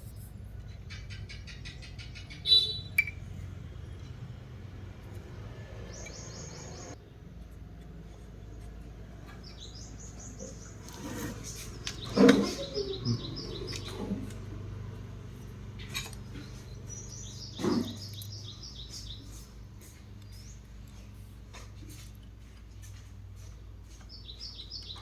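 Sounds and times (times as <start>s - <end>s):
small bird chirping: 0.0s - 4.4s, 5.0s - 7.0s, 9.2s - 14.6s, 15.3s - 21.7s, 24.0s - 25.0s.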